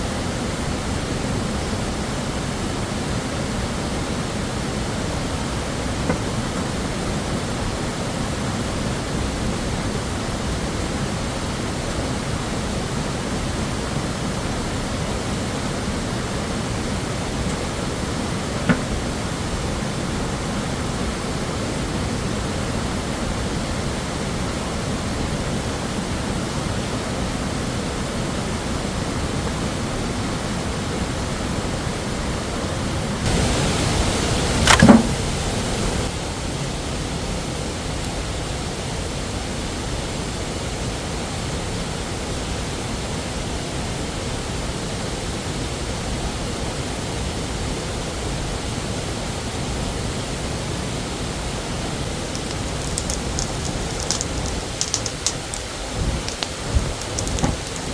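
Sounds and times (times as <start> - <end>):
waterfall rushing: 33.3 - 36.2.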